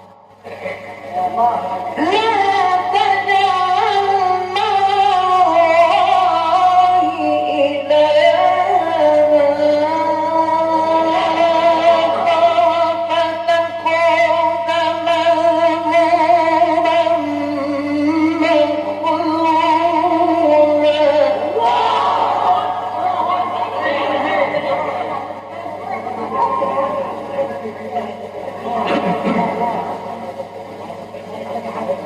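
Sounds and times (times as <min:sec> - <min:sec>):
man chanting melodically: 0:00.0 - 0:25.4
low mains hum: 0:00.0 - 0:32.0.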